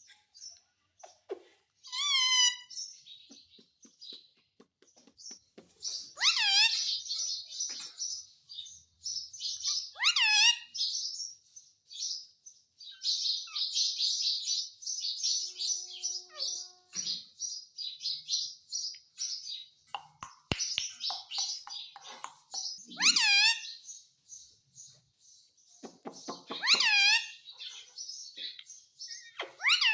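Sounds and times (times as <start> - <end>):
parrot chattering: 21.2 - 23.7.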